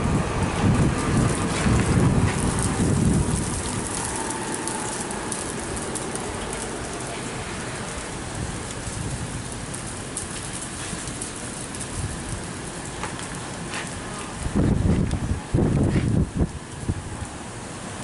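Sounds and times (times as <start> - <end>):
wind rumble on microphone: 0.0 - 18.0
ice pellets ticking: 0.8 - 14.4.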